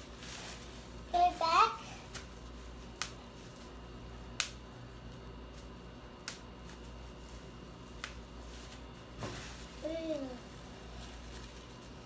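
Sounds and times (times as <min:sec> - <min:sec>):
bubble wrap popping: 0:02.1 - 0:12.0.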